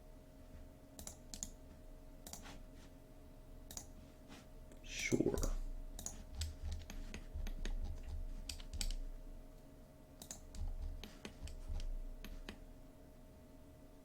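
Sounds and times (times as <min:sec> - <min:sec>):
faint steady hum: 0:00.0 - 0:14.0
keyboard and mouse clicking: 0:01.0 - 0:01.6, 0:02.2 - 0:02.5, 0:03.7 - 0:03.9, 0:05.3 - 0:09.0, 0:10.2 - 0:12.6.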